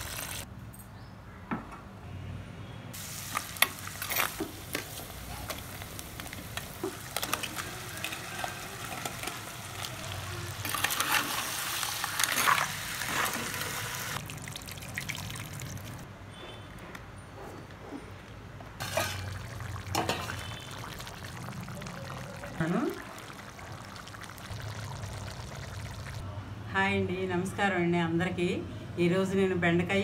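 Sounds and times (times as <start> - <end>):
curry frying and simmering: 0.0 - 0.5, 2.9 - 16.6, 18.8 - 26.2
liquid pouring: 12.2 - 16.1, 18.8 - 26.2.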